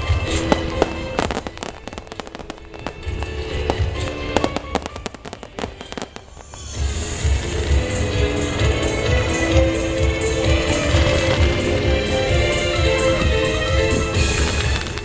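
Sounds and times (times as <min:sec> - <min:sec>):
fireworks bangs and crackles: 0:00.0 - 0:15.0
music with low beat: 0:00.0 - 0:15.0.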